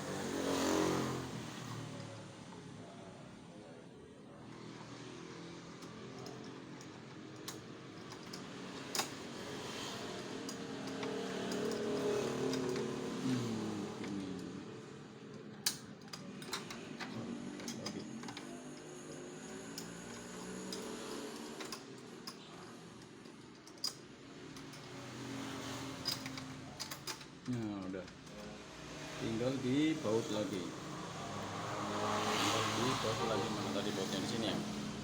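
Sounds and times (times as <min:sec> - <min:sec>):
clicks and knocks of hard parts: 0:26.0 - 0:28.4.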